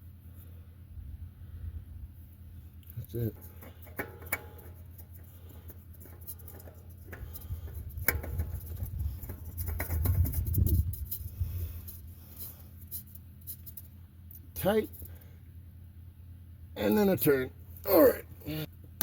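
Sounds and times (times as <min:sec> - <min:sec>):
tools clicking and scraping: 0:02.8 - 0:15.1.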